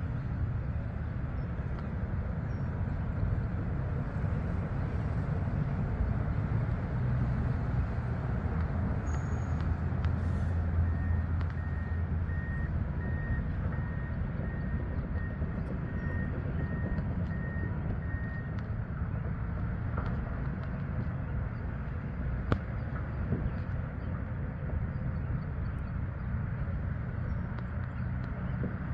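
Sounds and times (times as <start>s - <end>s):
heavy vehicle engine rumbling: 0.0s - 28.9s
reversing alarm beeping: 10.6s - 18.6s.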